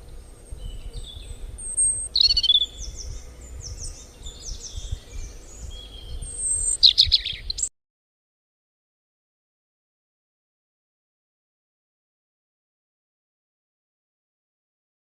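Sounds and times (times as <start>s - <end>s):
low rumble: 0.0s - 7.5s
birds chirping: 0.0s - 7.7s.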